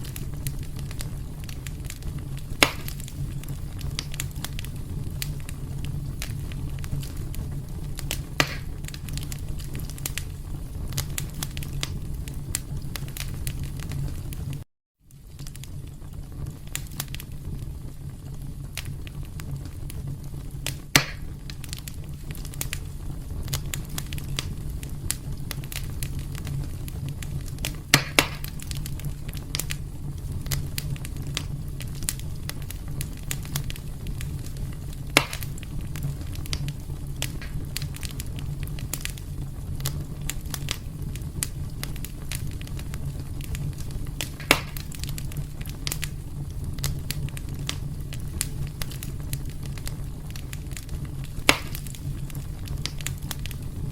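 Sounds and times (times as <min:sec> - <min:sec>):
sharp pops of fire: 0:00.0 - 0:53.9
wood fire crackling: 0:00.0 - 0:53.9.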